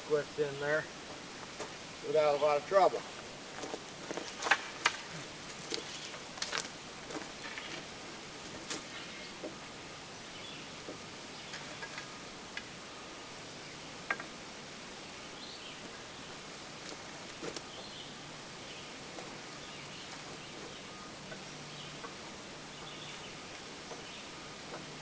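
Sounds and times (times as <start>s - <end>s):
bird chirps: 19.6s - 24.5s.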